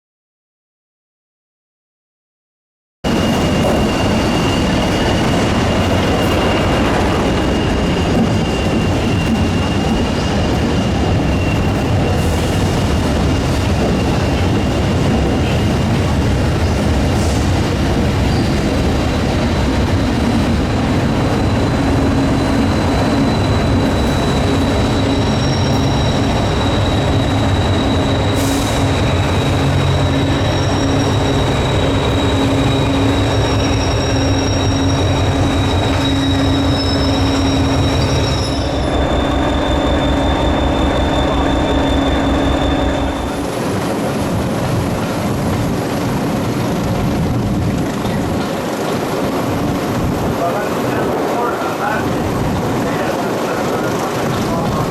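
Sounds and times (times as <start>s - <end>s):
train engine drone: 3.1s - 54.9s
wheel and rail noise: 3.1s - 54.9s
thin high whine: 21.3s - 43.6s.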